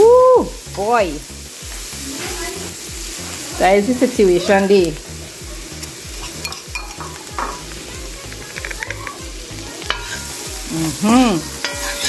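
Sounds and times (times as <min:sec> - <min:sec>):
sauce sizzling in a pan: 0:00.0 - 0:12.0
metal spoon stirring and clicking: 0:05.7 - 0:07.6, 0:08.2 - 0:10.3, 0:11.6 - 0:12.0.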